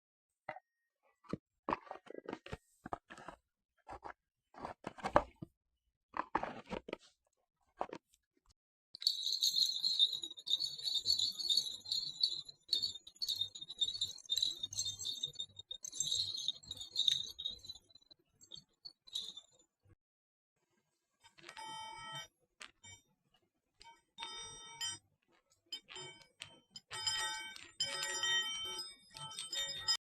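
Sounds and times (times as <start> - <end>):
high metallic jingling: 9.0 - 19.4.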